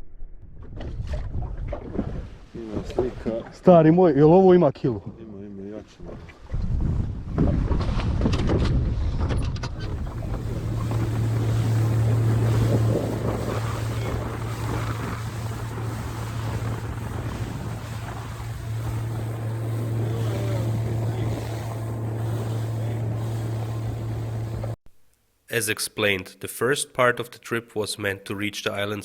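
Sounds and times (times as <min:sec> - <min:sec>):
boat motor humming: 0:09.7 - 0:24.8
wind and water rushing: 0:09.7 - 0:24.8.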